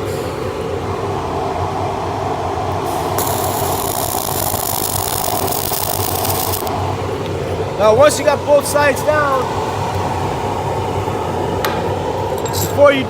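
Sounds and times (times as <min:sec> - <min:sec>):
fume extractor running: 0:00.0 - 0:13.0
welding arc sizzling: 0:02.8 - 0:07.0.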